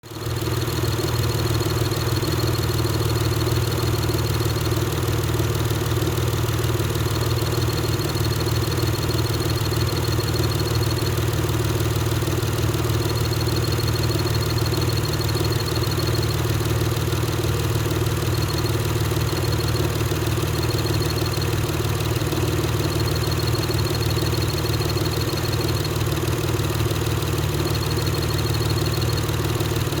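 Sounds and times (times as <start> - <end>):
car engine idling: 0.1 - 30.0
clutch chirping: 7.2 - 26.8.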